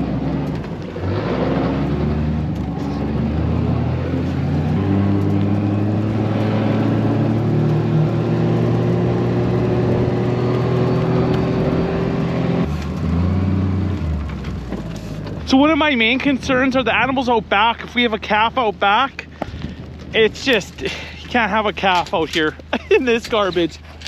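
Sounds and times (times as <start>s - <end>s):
rushing noise: 0.0s - 12.8s
vehicle engine running: 0.0s - 24.0s.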